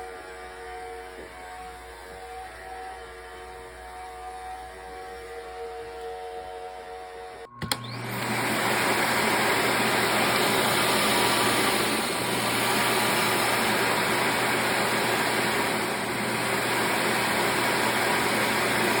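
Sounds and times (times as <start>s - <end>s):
vacuum suction motor rushing: 0.0s - 19.0s
vacuum switch click: 7.5s - 8.3s.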